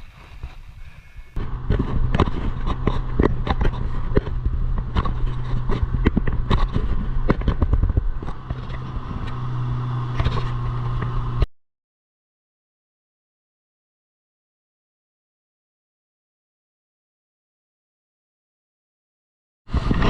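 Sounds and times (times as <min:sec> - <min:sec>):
engine running: 0:00.0 - 0:11.5, 0:19.7 - 0:20.0.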